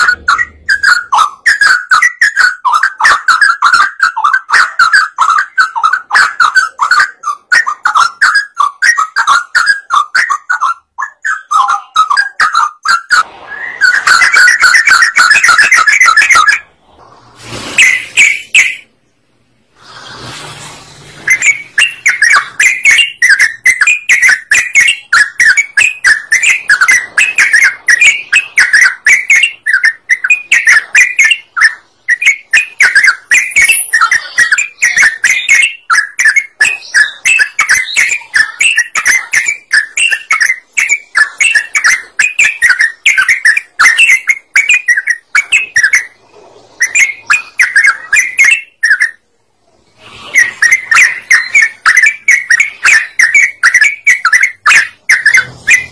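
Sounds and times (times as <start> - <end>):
bird singing bubbling chirps: 21.2 - 46.2, 46.8 - 49.2, 50.3 - 55.9.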